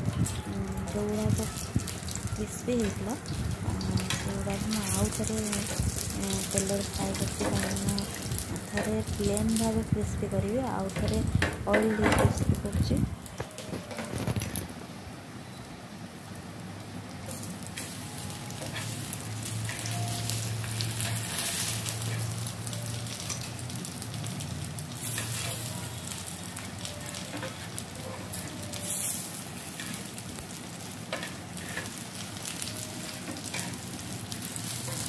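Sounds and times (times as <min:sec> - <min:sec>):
bread frying in oil: 0:00.0 - 0:35.0
metal tongs clicking on pan: 0:10.8 - 0:12.2.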